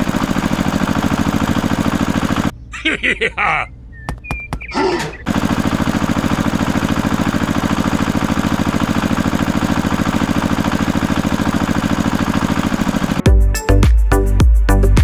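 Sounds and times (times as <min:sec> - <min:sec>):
small engine idling: 0:00.0 - 0:02.5, 0:05.0 - 0:13.3.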